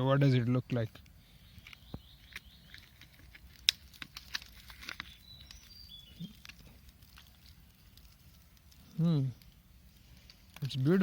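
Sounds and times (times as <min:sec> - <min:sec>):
dry leaves crackling: 0:01.7 - 0:11.0
faint high chirps: 0:05.0 - 0:06.8.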